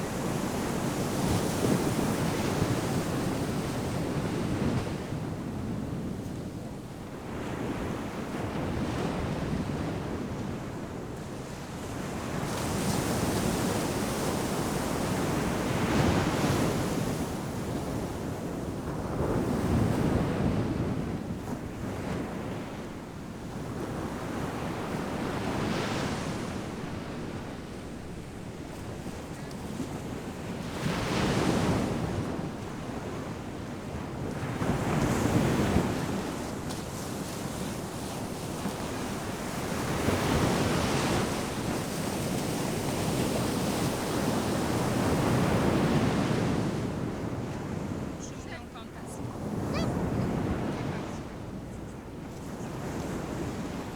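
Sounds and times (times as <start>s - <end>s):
ocean waves crashing: 44.7s - 53.9s.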